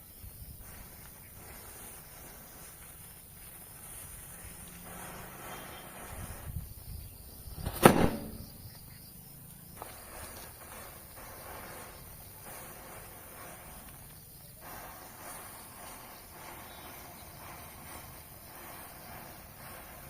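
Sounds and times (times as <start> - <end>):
faint outdoor background noise: 0.0 - 20.0
sharp loud pop: 7.6 - 8.6
soft thuds: 7.6 - 8.6.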